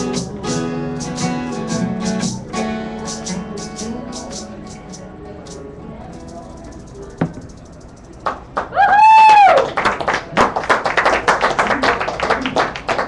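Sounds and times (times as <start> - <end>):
people clapping: 8.2 - 13.0.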